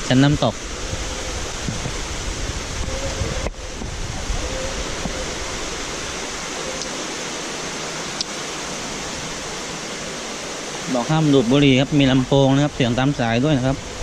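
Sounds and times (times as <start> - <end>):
wind rumble on microphone: 0.0 - 6.8, 11.4 - 14.0
water rushing over waterfall: 0.0 - 14.0.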